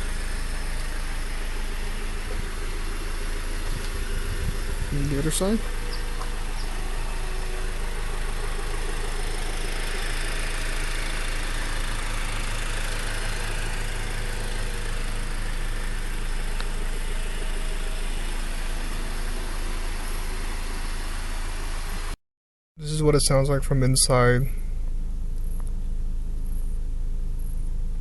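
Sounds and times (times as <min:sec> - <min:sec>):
car engine idling: 0:00.0 - 0:22.2, 0:22.9 - 0:28.0.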